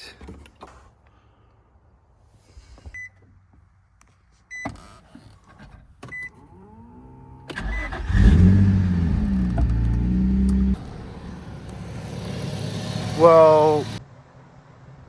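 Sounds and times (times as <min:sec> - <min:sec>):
car engine revving: 0:06.4 - 0:14.0.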